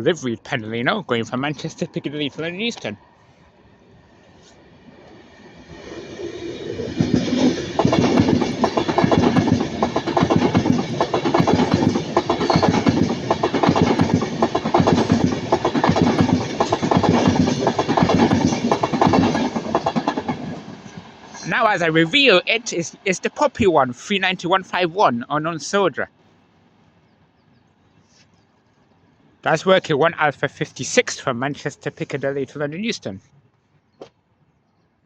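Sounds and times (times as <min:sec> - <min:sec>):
electric train passing: 0:00.8 - 0:27.4
wheels clacking over rail joints: 0:06.9 - 0:22.4.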